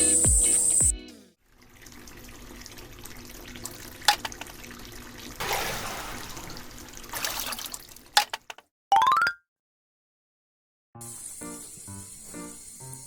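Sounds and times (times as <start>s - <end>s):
water running and splashing: 1.6s - 8.2s.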